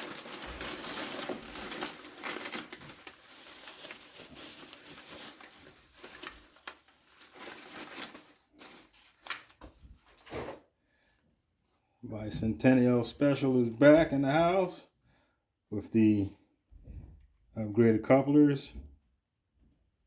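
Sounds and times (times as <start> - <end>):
packing material crinkling: 0.0 - 11.8.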